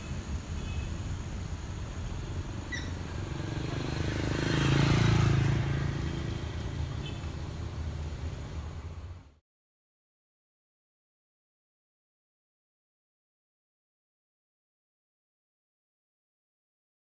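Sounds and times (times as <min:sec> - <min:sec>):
car engine and road rumble: 0:00.0 - 0:09.4.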